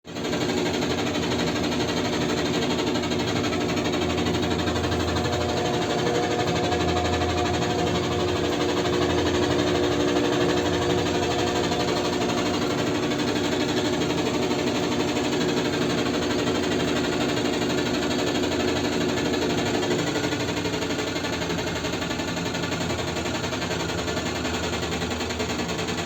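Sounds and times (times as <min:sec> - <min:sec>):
washing machine spinning: 0:00.1 - 0:26.0
rattling buzz: 0:00.9 - 0:18.7.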